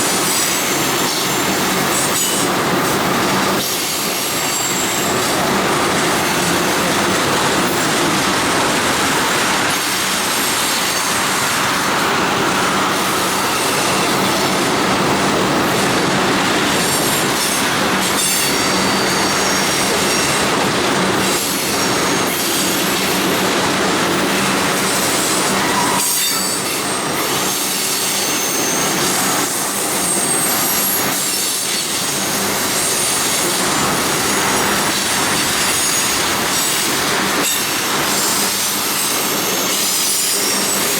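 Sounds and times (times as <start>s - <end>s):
train wheels rattling on rail: 0.0s - 40.9s
high-pitched wheel squeal: 25.6s - 31.6s.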